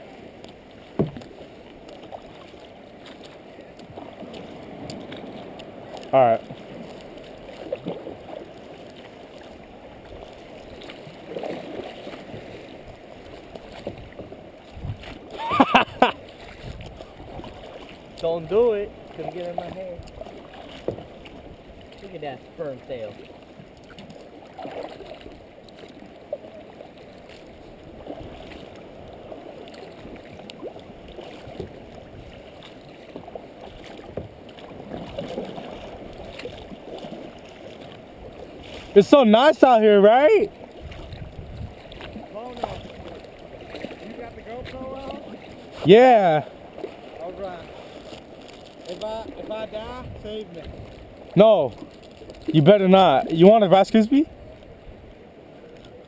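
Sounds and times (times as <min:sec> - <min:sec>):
water lapping against a kayak: 0:00.0 - 0:56.0
light knocks on hull: 0:00.9 - 0:01.4, 0:20.0 - 0:21.1, 0:31.5 - 0:31.8, 0:33.1 - 0:35.4.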